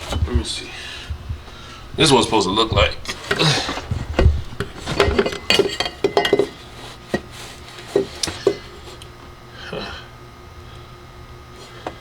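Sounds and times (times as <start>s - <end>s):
car parts clicking and knocking: 2.8s - 7.3s.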